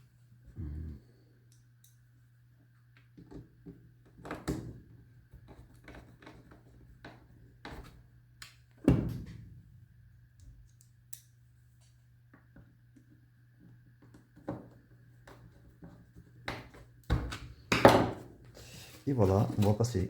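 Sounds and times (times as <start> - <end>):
faint steady hum: 0.0 - 5.7.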